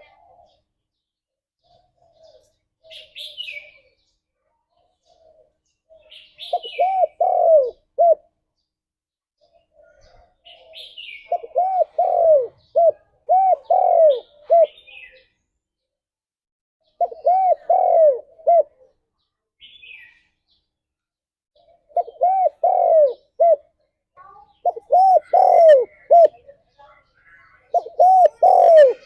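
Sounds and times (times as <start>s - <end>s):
high-pitched bird chirps: 4.9s - 8.2s, 9.4s - 15.4s, 21.6s - 29.0s
dove cooing: 5.1s - 8.3s, 10.0s - 15.2s, 16.9s - 19.0s, 21.6s - 23.7s, 24.6s - 26.4s, 27.7s - 29.0s.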